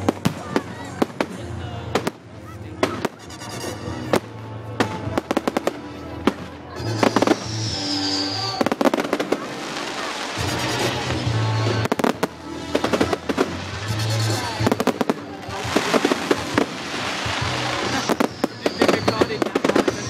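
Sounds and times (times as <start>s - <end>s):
firework bangs and crackling: 0.0s - 20.0s
firework whistling: 4.8s - 20.0s
loud music with heavy bass: 6.8s - 18.5s.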